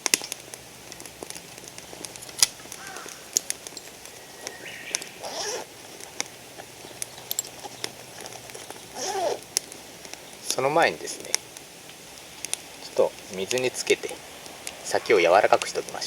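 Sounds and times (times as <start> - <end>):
campfire crackling and popping: 0.0 - 16.0
bird calls: 1.7 - 10.9, 14.1 - 16.0.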